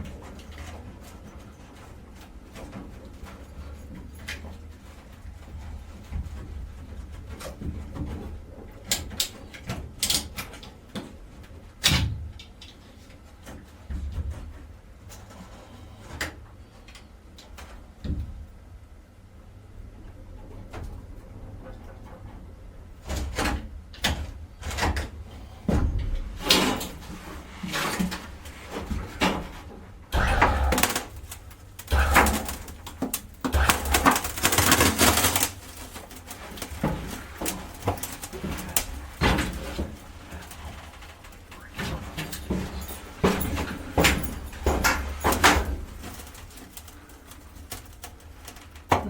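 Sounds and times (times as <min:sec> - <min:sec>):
knocks and scrapes: 0:24.6 - 0:49.0.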